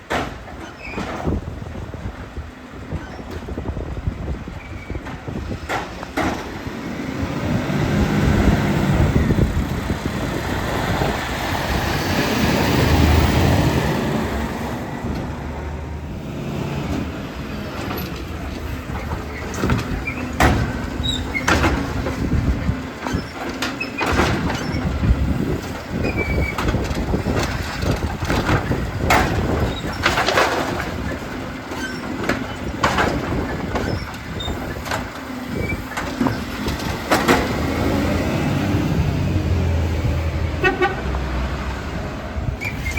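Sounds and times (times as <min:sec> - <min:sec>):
garbage truck engine running: 0:00.0 - 0:42.9
loud rushing noise: 0:06.2 - 0:22.8.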